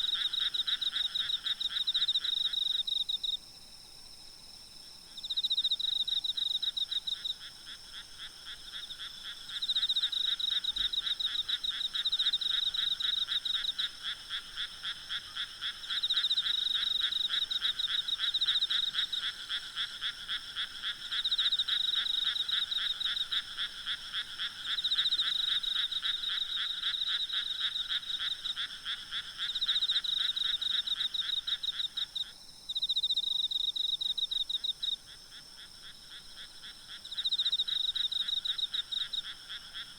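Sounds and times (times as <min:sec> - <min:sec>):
frogs croaking: 0:00.0 - 0:03.4, 0:05.1 - 0:39.9
insects trilling: 0:05.2 - 0:39.9.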